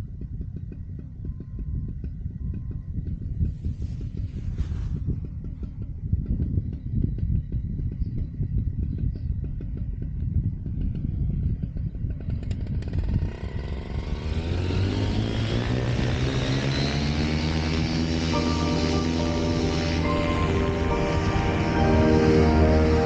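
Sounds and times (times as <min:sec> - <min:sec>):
wind buffeting the microphone: 0:00.0 - 0:13.3.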